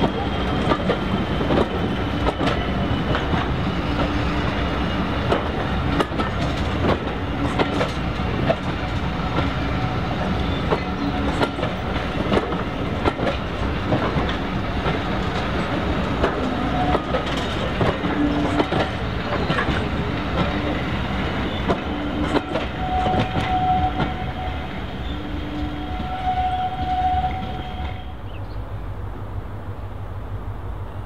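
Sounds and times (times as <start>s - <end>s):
wheels clicking on track: 0.0s - 24.2s
diesel train rumble: 0.0s - 31.0s.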